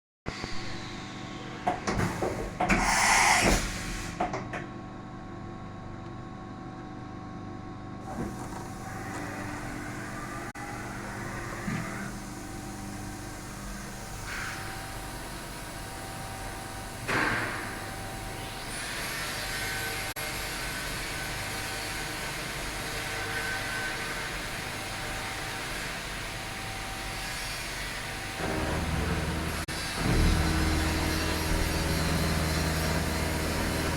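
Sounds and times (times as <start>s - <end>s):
milling machine humming: 27.8s - 33.9s.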